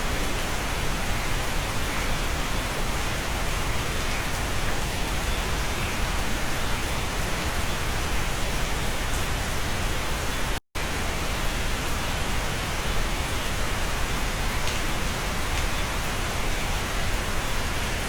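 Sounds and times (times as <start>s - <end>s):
steady rain on a cabin: 0.0s - 18.0s.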